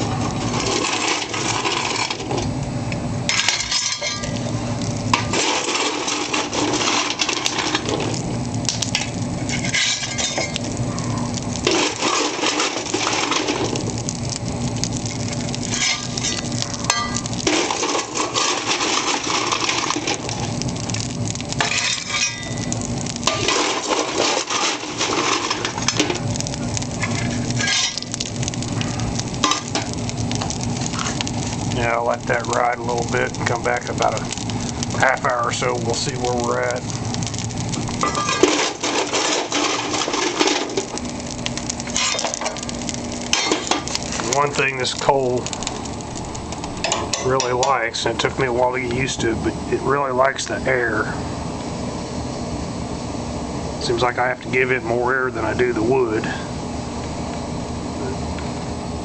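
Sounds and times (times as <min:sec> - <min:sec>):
wood fire crackling and hissing: 0:00.0 - 0:59.0
coal clattering against metal: 0:00.1 - 0:02.5, 0:03.3 - 0:04.5, 0:05.1 - 0:10.8, 0:11.5 - 0:13.9, 0:15.0 - 0:20.6, 0:21.5 - 0:26.3, 0:26.9 - 0:36.8, 0:37.9 - 0:41.0, 0:41.8 - 0:45.6, 0:46.6 - 0:48.4.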